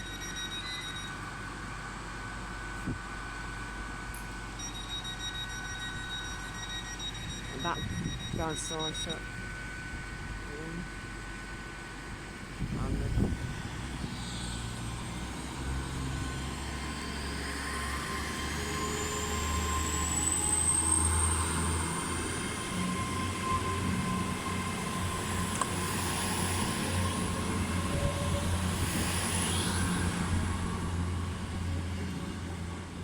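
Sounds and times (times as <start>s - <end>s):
diesel train engine pulling away: 11.0s - 33.0s.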